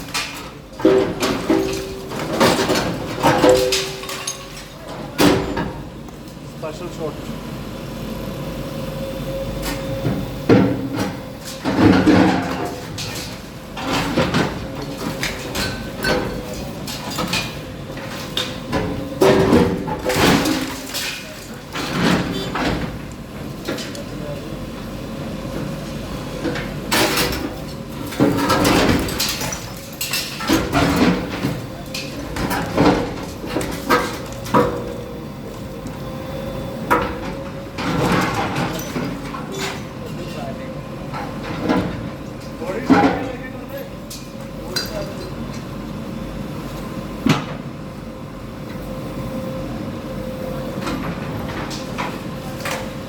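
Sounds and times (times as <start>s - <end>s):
bulldozer scraping and crashing: 0.0s - 6.0s, 9.3s - 24.2s, 25.2s - 44.6s.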